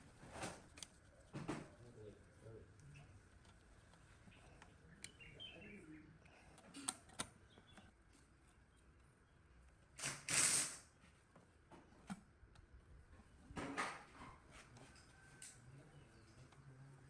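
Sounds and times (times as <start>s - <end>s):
clicks and taps of parts: 6.6s - 7.9s.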